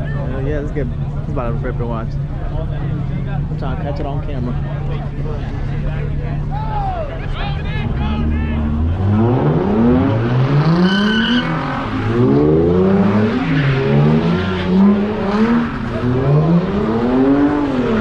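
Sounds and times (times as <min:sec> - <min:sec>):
car engine revving hard: 0:07.8 - 0:18.0
high tyre squeal: 0:09.7 - 0:16.0.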